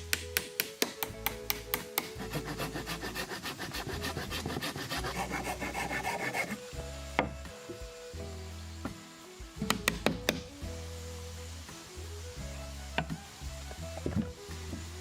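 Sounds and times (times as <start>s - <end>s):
background music: 0.0s - 15.0s
hand tool rasping on wood: 0.5s - 6.7s.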